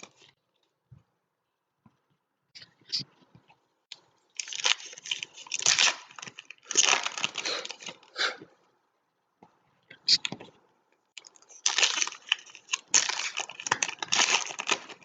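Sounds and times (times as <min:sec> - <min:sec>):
foil wrapper tearing and crinkling: 0:04.4 - 0:08.0, 0:11.5 - 0:15.0.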